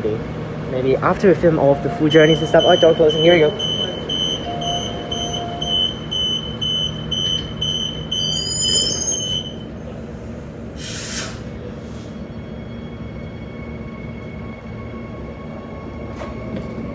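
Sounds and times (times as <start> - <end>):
train door warning beeps: 1.6 - 9.8
short hiss: 10.8 - 12.2.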